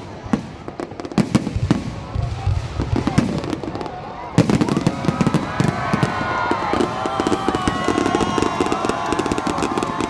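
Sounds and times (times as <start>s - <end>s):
fireworks crackling and popping: 0.0s - 10.0s.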